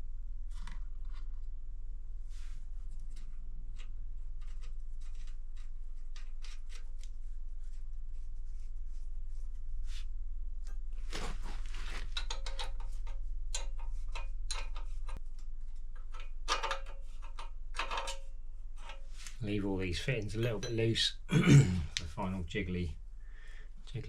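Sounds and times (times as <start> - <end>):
steady low hum: 7.0 - 24.0
metal parts and tools clicking: 12.1 - 15.2, 15.9 - 19.2.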